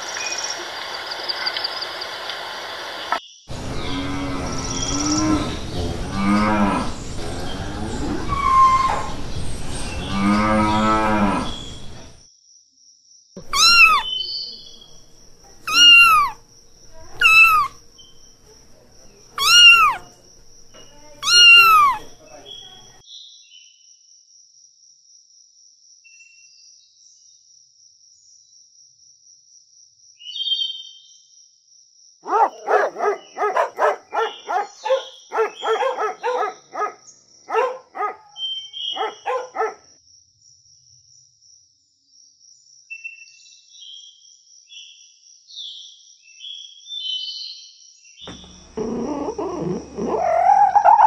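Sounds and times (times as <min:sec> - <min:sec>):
puppies yapping and whining: 0:13.4 - 0:14.1, 0:15.4 - 0:17.8, 0:19.4 - 0:22.2, 0:32.3 - 0:36.9, 0:48.3 - 0:51.0
faint high chirps: 0:13.4 - 0:23.0.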